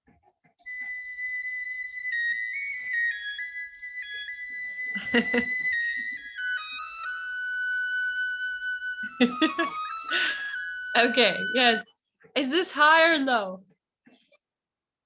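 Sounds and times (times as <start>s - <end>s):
high flute-like melody: 0.6s - 12.0s
person speaking: 10.9s - 13.7s.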